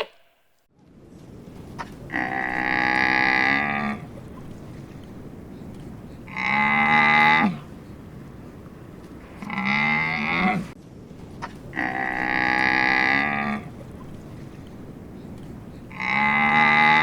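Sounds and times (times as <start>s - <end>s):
animal calling: 0.0s - 0.4s.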